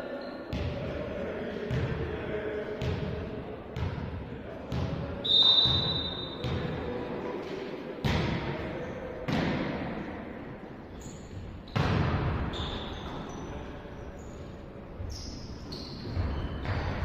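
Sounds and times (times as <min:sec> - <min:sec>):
sneakers squeaking on court: 0:10.9 - 0:17.0.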